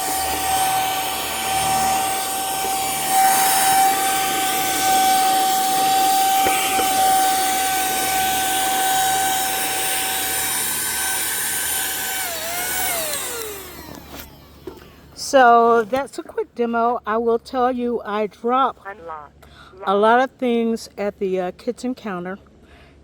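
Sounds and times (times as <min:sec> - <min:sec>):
vacuum motor winding down: 0:00.0 - 0:15.2
handheld vacuum whining: 0:00.0 - 0:15.9.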